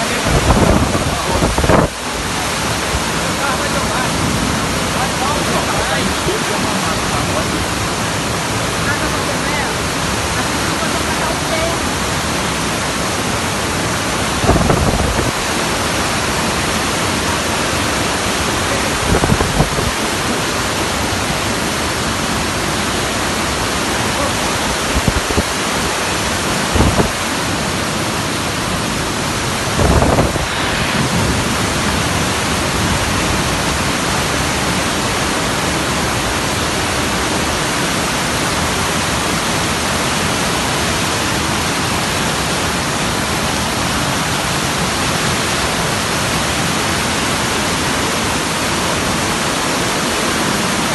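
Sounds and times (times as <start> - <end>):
heavy rain: 0.0 - 50.9.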